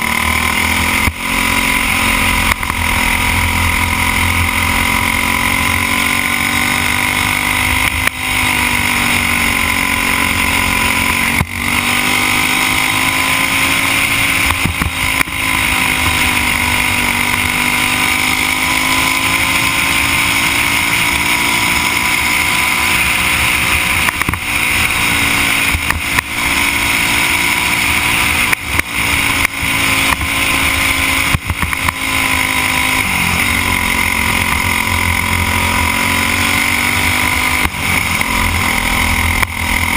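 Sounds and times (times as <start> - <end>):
kart engine racing: 0.0 - 39.9.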